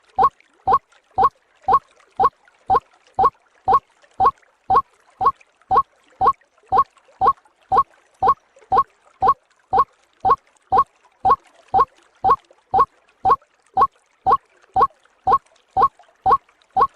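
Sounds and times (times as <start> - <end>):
waterhen call: 0.0 - 2.3, 11.3 - 13.4, 15.3 - 16.9.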